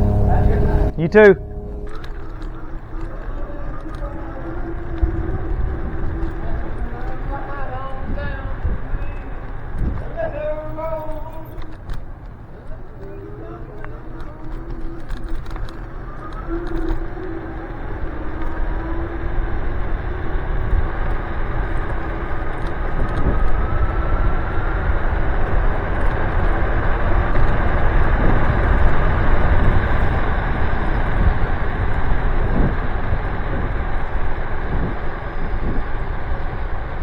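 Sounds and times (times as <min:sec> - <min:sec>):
wind rushing over microphone: 0:16.3 - 0:37.0.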